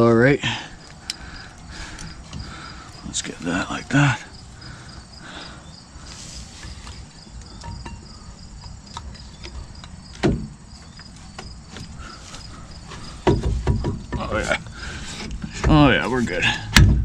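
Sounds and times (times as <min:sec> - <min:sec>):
crickets chirping: 0:00.0 - 0:17.0
metal clunk: 0:07.6 - 0:08.1.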